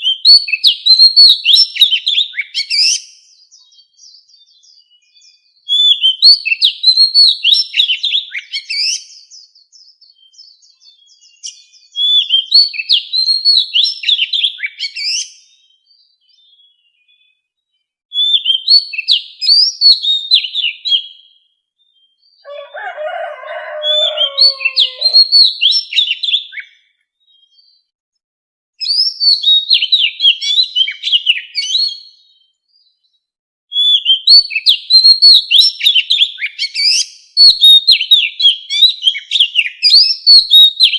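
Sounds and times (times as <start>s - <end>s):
bird singing whistled notes: 0.0s - 27.9s, 28.8s - 40.9s
lower-pitched bird call: 22.4s - 26.8s.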